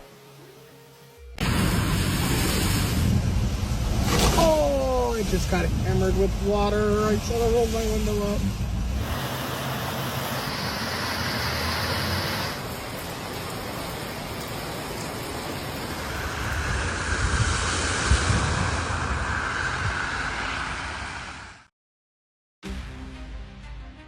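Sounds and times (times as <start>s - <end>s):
wind noise: 1.4s - 9.4s, 15.1s - 21.7s
rushing floodwater roar: 1.4s - 18.4s.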